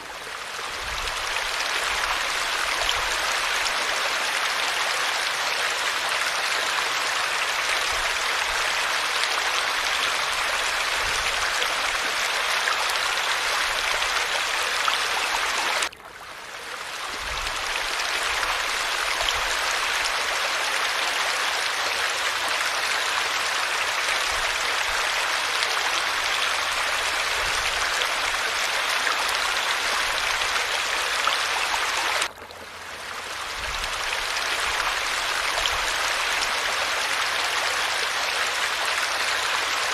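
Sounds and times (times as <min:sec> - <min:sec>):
falling water rushing: 0:00.0 - 0:39.9.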